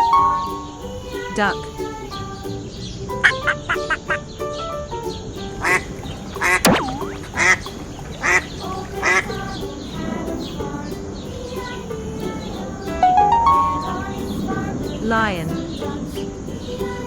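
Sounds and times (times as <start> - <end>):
light background music: 0.0 - 17.0
swooping sliding tone: 5.8 - 17.0.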